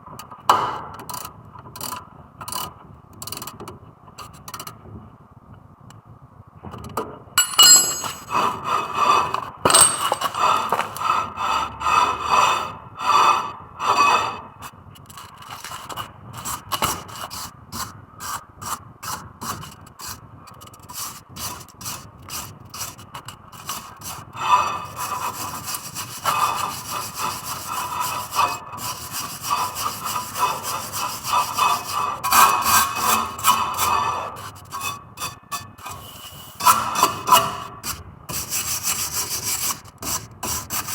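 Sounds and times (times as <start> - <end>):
hand tool scraping brake: 7.4 - 14.4, 20.9 - 40.9.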